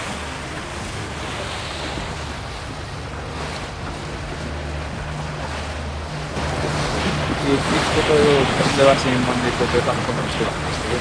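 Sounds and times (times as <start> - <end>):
boat engine drone: 0.0 - 11.0
water rushing past boat: 0.0 - 11.0
wind buffeting microphone: 0.0 - 11.0.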